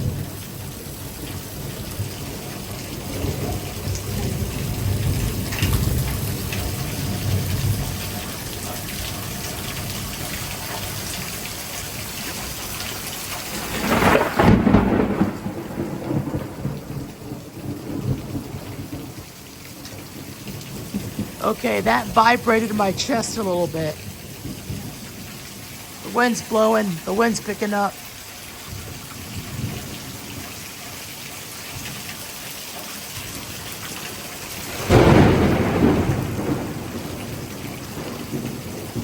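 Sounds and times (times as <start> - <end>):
low thunder rumbling: 0.0 - 28.0, 28.6 - 30.8, 33.0 - 39.0
heavy rain pouring: 0.0 - 39.0
loud thunderclap: 1.6 - 8.1, 13.4 - 25.4, 33.4 - 39.0.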